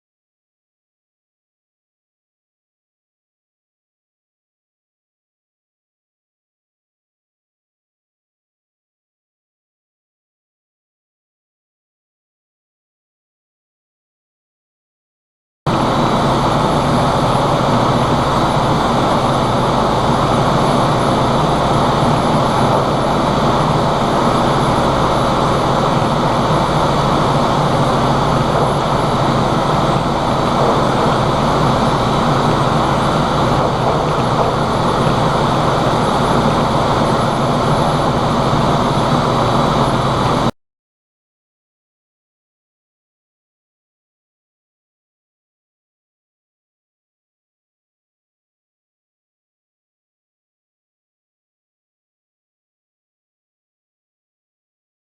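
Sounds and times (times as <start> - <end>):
ship engine room machinery drone: 15.7 - 40.5.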